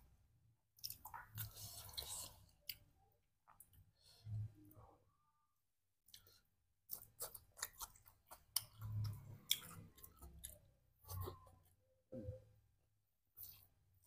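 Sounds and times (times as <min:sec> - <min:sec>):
person chewing food: 0:00.8 - 0:04.2, 0:06.0 - 0:11.8.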